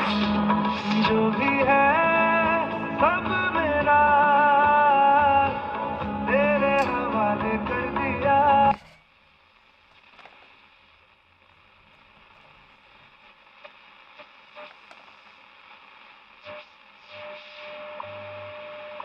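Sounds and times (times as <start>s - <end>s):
radio static hiss and crackles: 0.0s - 3.5s, 8.4s - 19.0s
radio music: 0.0s - 19.0s
radio steady tone: 4.1s - 19.0s.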